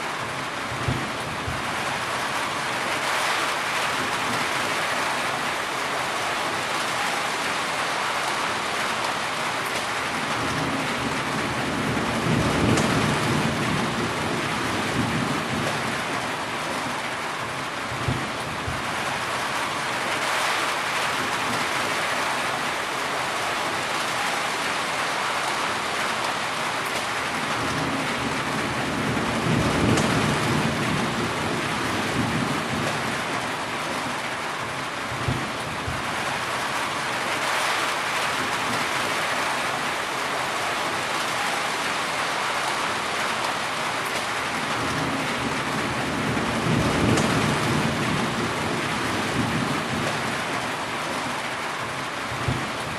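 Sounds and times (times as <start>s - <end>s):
heavy rain: 0.0s - 52.9s
low thunder rumbling: 10.4s - 16.2s, 27.5s - 33.4s, 44.6s - 50.6s.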